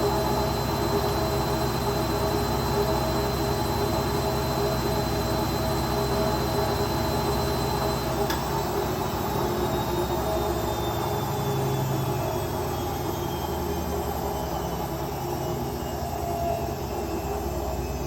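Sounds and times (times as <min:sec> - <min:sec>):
washing machine spinning: 0:00.0 - 0:18.0.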